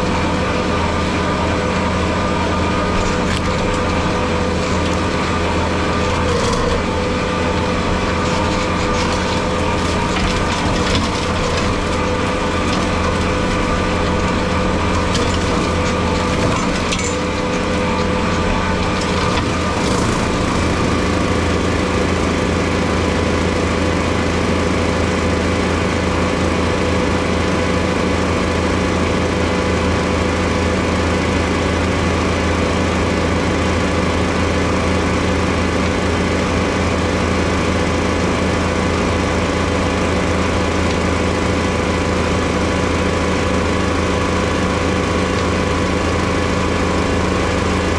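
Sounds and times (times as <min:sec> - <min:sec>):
skid steer engine running: 0:00.0 - 0:47.9.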